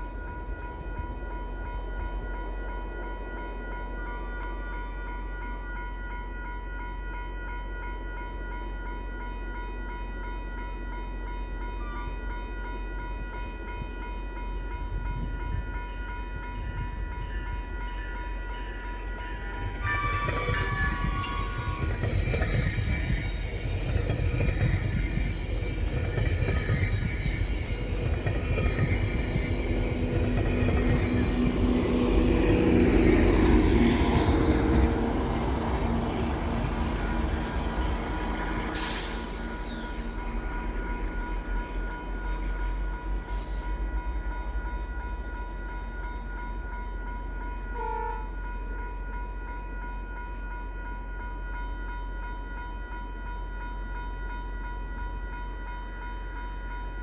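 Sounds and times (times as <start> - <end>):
diesel train rumbling past: 0.0 - 57.0
train horn: 16.5 - 22.3, 47.7 - 48.6.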